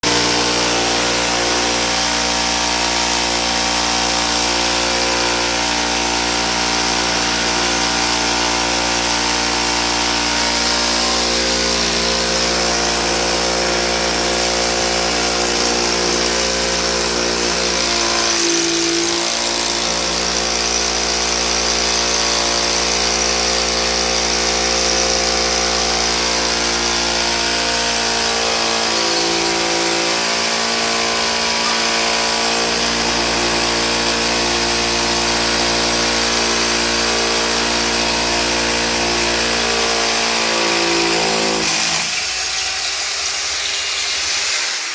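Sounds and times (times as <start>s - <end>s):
electric drill whining: 0.0s - 44.9s.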